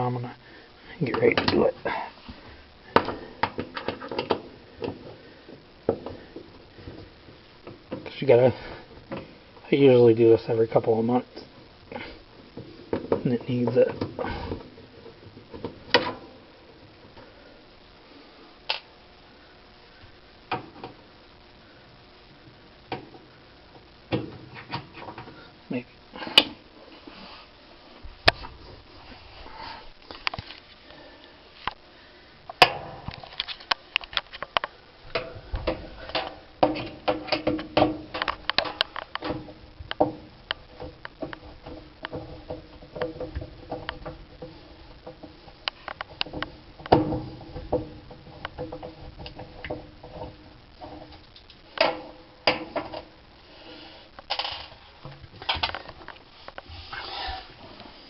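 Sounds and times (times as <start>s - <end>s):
dryer parts clicking and rattling: 2.9s - 7.0s, 12.6s - 16.3s, 32.6s - 53.2s, 54.2s - 56.2s.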